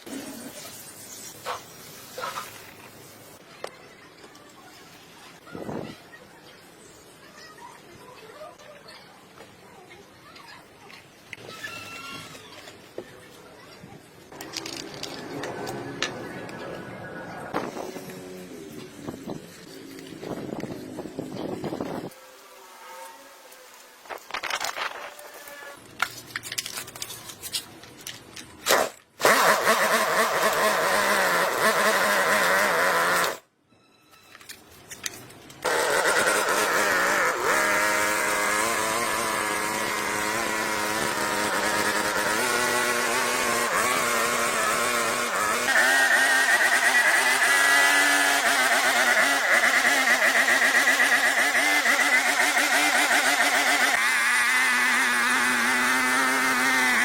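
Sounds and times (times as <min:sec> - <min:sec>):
chainsaw engine running: 0:28.7 - 0:33.4, 0:35.6 - 0:57.0.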